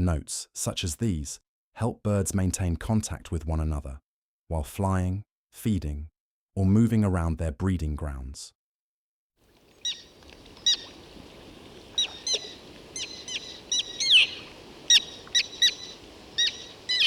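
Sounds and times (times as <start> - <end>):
faint background hiss: 9.5 - 17.0
tern calls: 9.5 - 17.0.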